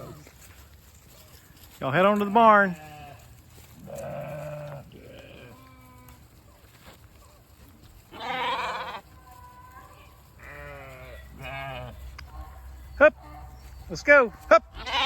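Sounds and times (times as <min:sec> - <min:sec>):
sheep bleating: 0:02.6 - 0:06.2, 0:08.1 - 0:12.1, 0:14.7 - 0:15.0.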